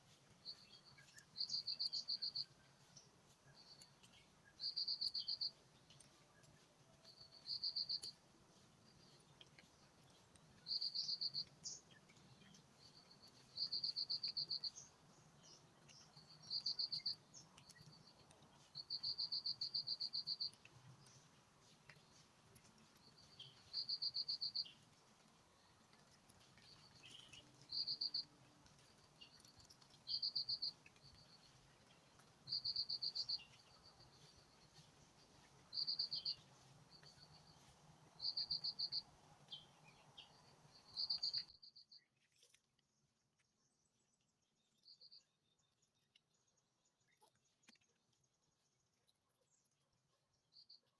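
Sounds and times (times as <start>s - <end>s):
faint insect chirps: 0.4s - 2.7s, 3.5s - 5.6s, 7.0s - 8.2s, 10.6s - 11.8s, 12.5s - 20.7s, 23.0s - 24.8s, 26.6s - 31.7s, 32.4s - 42.0s.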